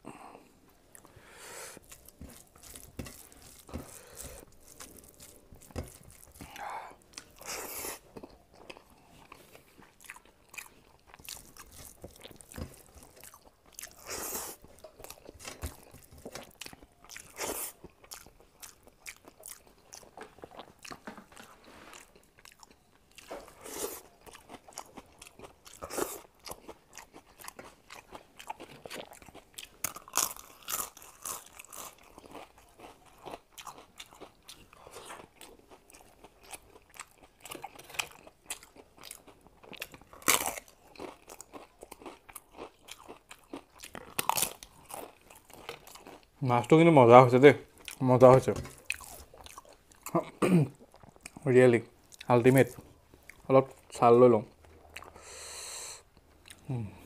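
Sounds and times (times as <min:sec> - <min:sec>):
person chewing food: 0:00.1 - 0:46.4, 0:47.6 - 0:53.9, 0:54.5 - 0:57.0.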